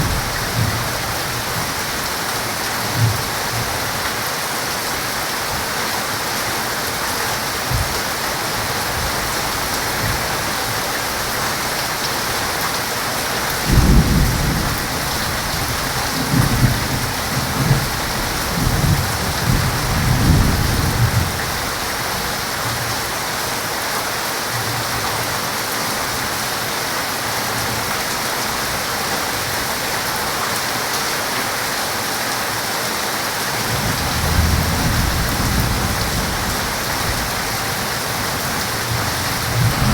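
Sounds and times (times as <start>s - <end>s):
heavy rain falling: 0.0s - 39.9s
thunder rumbling: 13.6s - 21.7s, 33.7s - 39.9s.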